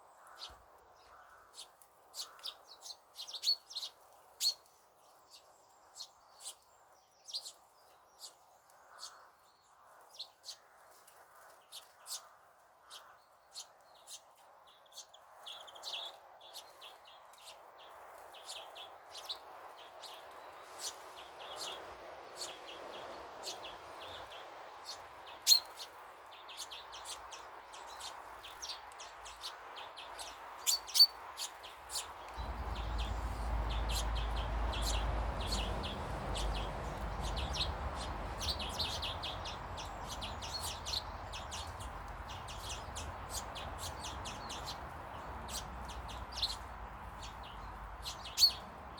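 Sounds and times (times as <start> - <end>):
small birds chirping: 0.0 - 48.9
low rumble: 32.4 - 41.3.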